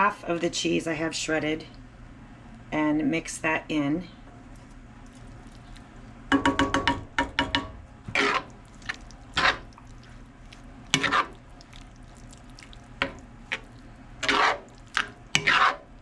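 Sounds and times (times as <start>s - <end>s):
utensil scraping dish: 8.1s - 9.8s, 10.9s - 11.4s, 13.0s - 15.9s.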